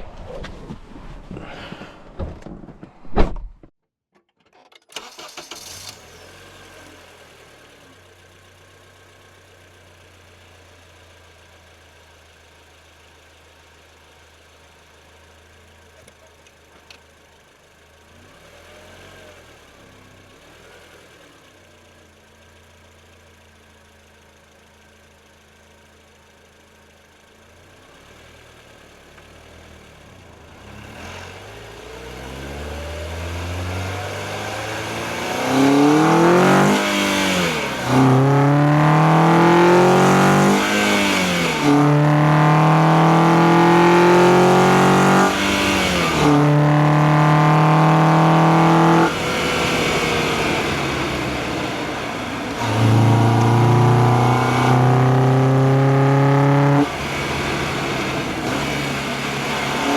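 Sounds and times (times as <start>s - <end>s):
car engine revving through gears: 18.1s - 21.2s, 29.2s - 59.9s.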